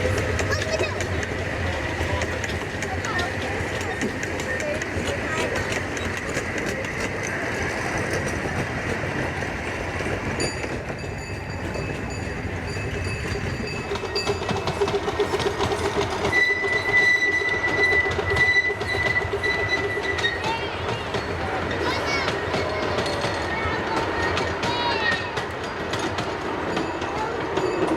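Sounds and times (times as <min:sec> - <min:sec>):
train wheels clicking over rail joints: 0:00.0 - 0:27.9
high wheel squeal: 0:13.3 - 0:21.8.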